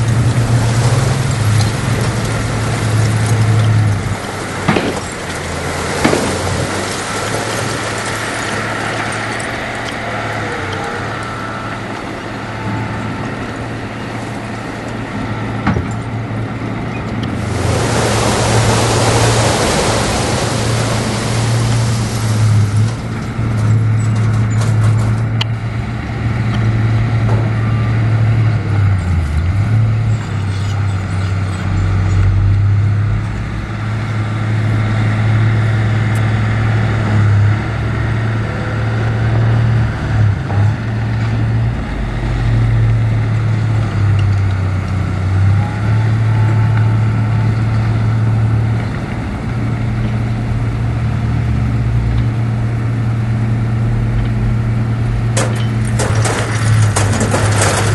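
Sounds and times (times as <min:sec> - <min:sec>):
diesel machinery engine drone: 0:00.0 - 0:57.9
loud rushing hiss: 0:17.4 - 0:22.8.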